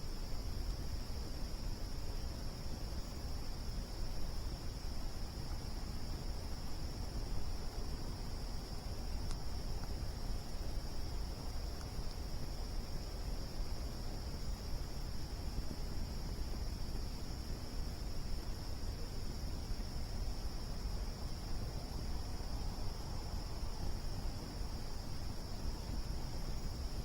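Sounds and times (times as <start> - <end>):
crickets trilling: 0.0 - 27.0
faint click: 9.2 - 10.0.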